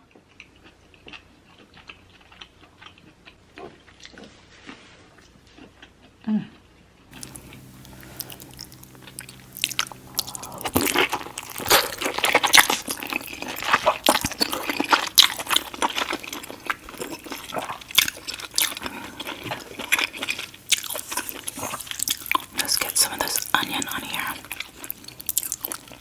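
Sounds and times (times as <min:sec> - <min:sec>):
wet eating and chewing sounds: 0:00.0 - 0:26.0
low steady hum: 0:07.1 - 0:26.0.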